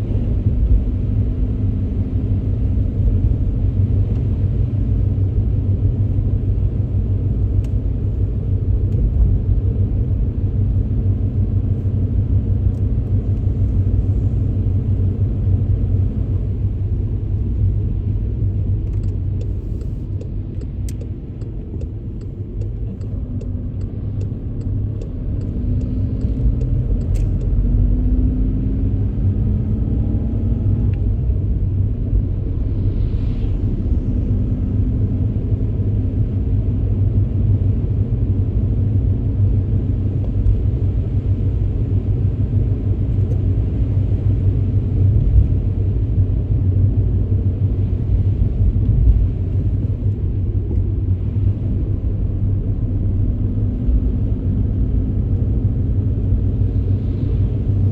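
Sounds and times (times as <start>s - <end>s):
car driving on wet road: 0.0s - 57.9s
light sharp ticks: 7.6s - 7.8s, 18.8s - 27.6s.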